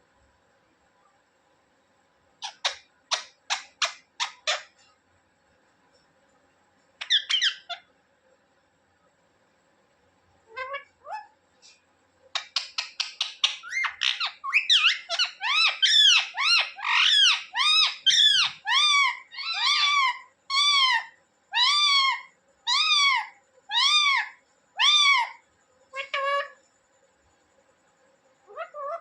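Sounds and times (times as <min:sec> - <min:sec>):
parrot chattering and screeching: 0:02.4 - 0:04.8, 0:07.0 - 0:07.9, 0:10.5 - 0:11.4, 0:12.4 - 0:26.6, 0:28.5 - 0:29.0.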